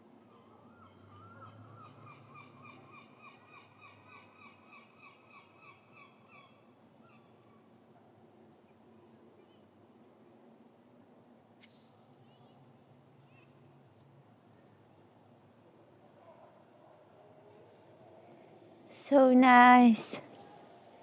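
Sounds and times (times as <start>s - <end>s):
outdoor background hiss: 0.0s - 21.0s
bird calling faintly: 11.6s - 14.8s.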